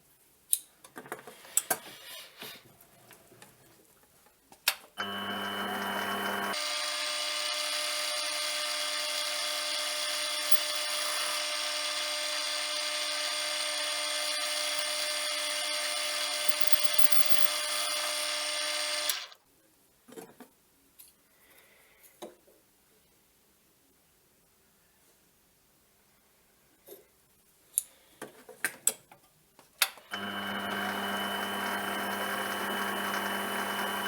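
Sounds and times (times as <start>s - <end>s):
metal lathe whining: 5.0s - 19.4s, 30.1s - 34.0s.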